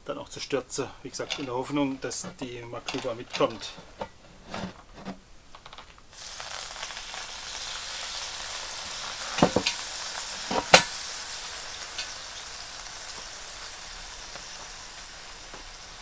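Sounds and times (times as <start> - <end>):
sizzling hiss of cooking liquid: 6.1 - 16.0.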